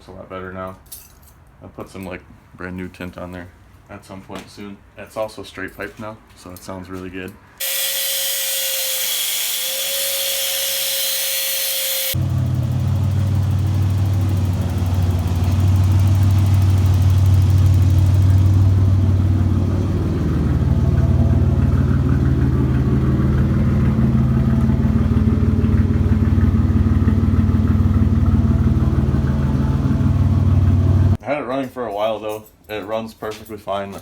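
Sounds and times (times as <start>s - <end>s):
loud deep car exhaust: 12.2s - 31.2s.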